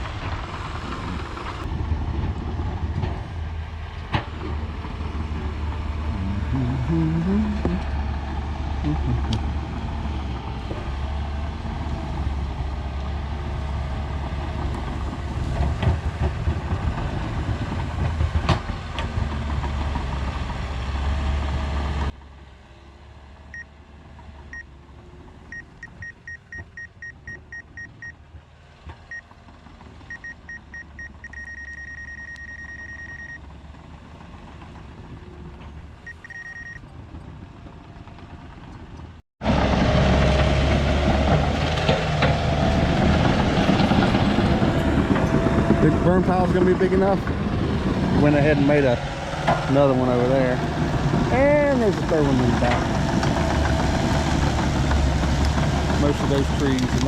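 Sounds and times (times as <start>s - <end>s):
heavy machinery droning: 0.0s - 22.1s, 39.4s - 57.0s
backup alarm beeping: 25.5s - 28.1s, 30.1s - 33.4s, 36.1s - 36.8s.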